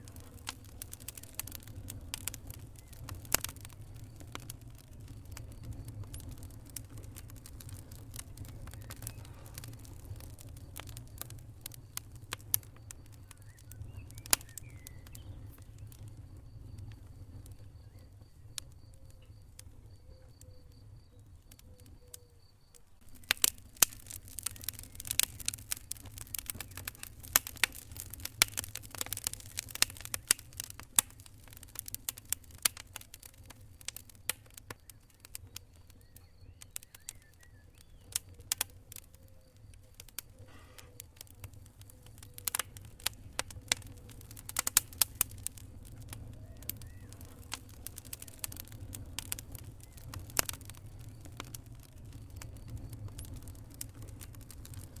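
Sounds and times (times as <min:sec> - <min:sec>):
low rumble of fire: 0:00.0 - 0:55.0
wood fire crackling with pops: 0:00.0 - 0:55.0.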